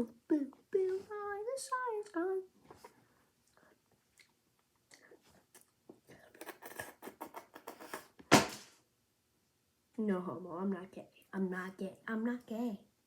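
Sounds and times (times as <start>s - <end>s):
chewing and crunching food: 2.8s - 8.1s.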